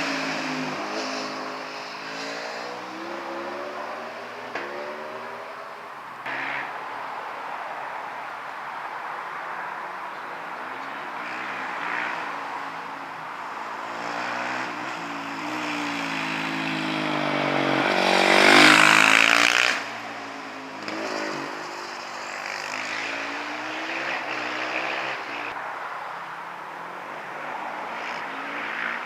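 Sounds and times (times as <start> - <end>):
racing motorcycle engine revving: 0.0 - 6.8, 11.0 - 25.6, 27.9 - 29.0.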